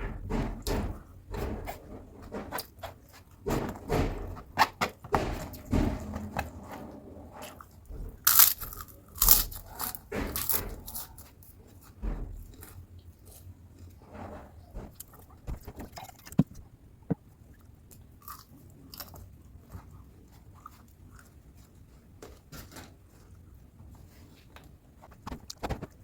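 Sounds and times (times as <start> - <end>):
crunching and chewing food: 7.9 - 14.0, 17.5 - 23.6.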